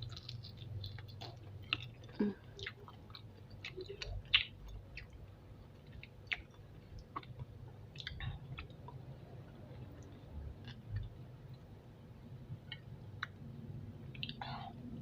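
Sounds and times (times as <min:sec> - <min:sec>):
chewing and gnawing: 0:00.0 - 0:11.6
wet mouth clicks and smacks: 0:14.1 - 0:14.5.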